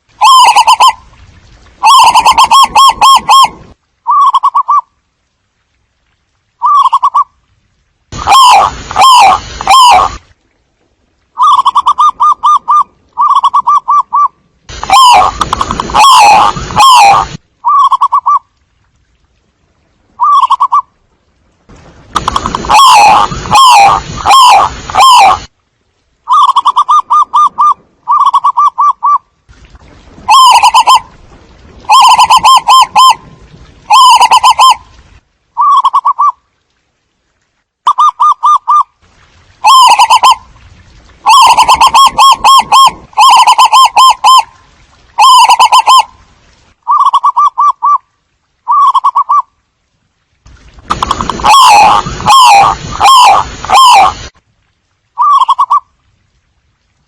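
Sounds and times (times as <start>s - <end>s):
doves cooing: 33.9s - 34.8s, 39.6s - 40.4s, 45.2s - 46.1s, 51.0s - 54.2s.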